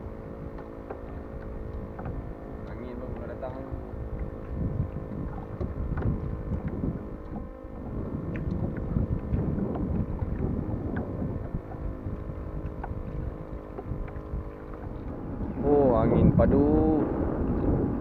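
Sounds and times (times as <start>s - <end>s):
water splashes: 0.0s - 18.0s
wind buffeting microphone: 0.0s - 18.0s.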